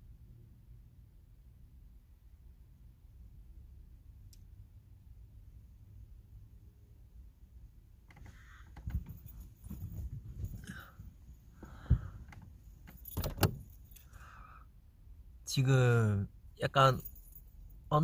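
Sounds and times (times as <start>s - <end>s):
rustling inside a car: 7.9s - 14.2s.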